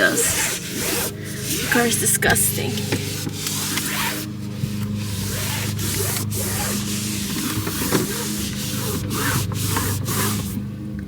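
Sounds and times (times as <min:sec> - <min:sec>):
cloth wiping scratchy hiss: 0:00.0 - 0:02.1, 0:03.0 - 0:10.6
steady low hum: 0:00.0 - 0:11.0.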